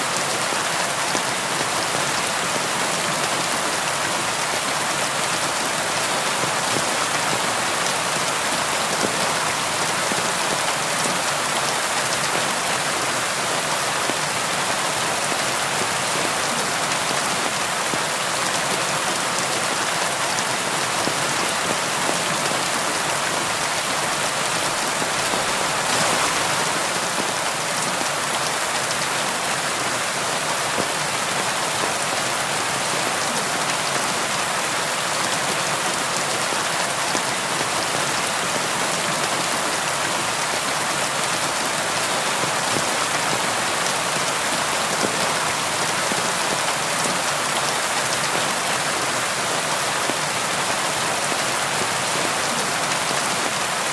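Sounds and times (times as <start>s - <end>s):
rain against a window: 15.7s - 31.0s.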